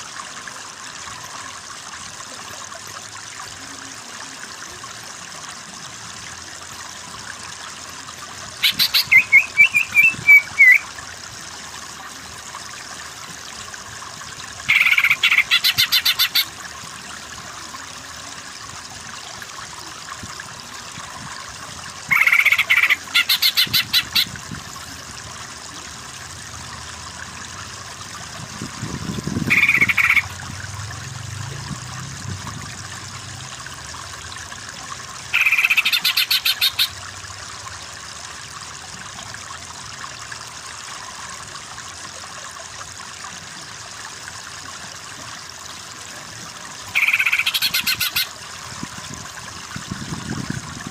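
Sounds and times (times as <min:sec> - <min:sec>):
running water: 0:00.0 - 0:50.9
bird chattering repeated notes: 0:08.6 - 0:10.8, 0:14.7 - 0:16.5, 0:22.1 - 0:24.3, 0:29.5 - 0:30.3, 0:35.3 - 0:36.9, 0:47.0 - 0:48.3.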